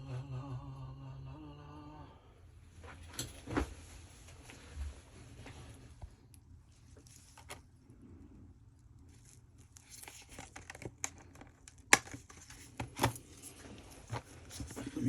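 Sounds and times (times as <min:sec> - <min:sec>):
hands rummaging with rustling: 0:09.1 - 0:15.0.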